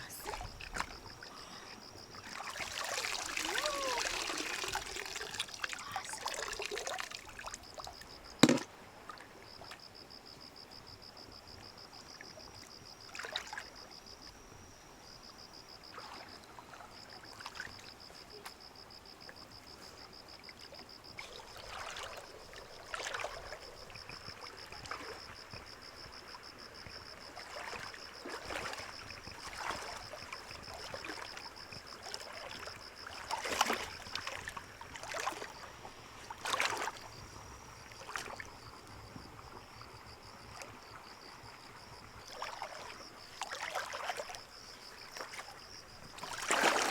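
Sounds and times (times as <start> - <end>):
water splashing and trickling: 0.0 - 9.7, 13.1 - 13.7, 20.4 - 25.7, 26.5 - 46.9.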